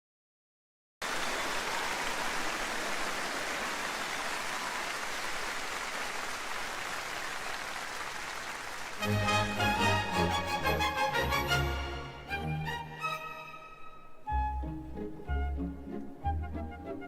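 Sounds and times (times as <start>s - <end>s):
large audience applauding: 1.0s - 10.7s.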